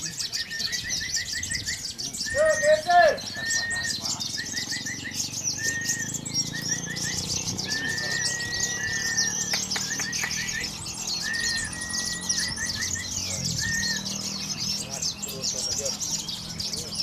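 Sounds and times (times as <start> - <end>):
songbirds chirping and trilling: 0.0 - 17.0
short whistled bird notes: 0.4 - 14.0.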